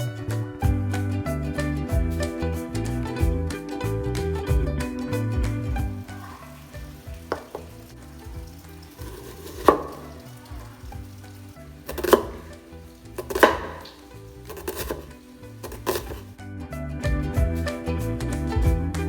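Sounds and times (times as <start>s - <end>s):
quiet background music: 0.0s - 19.0s
utensil knocking: 5.8s - 16.3s.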